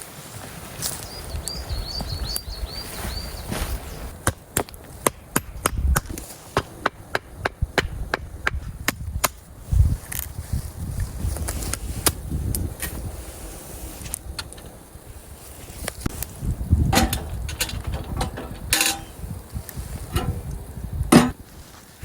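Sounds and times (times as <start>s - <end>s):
bird chirping: 1.0s - 4.1s.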